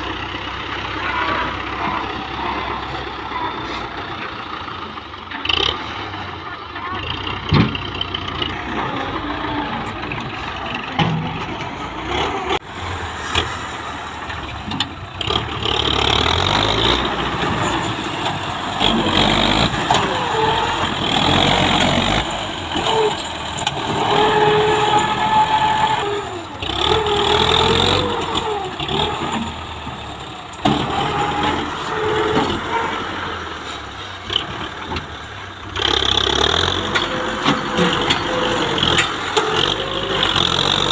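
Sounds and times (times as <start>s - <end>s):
tractor diesel engine revving: 0.0s - 40.9s.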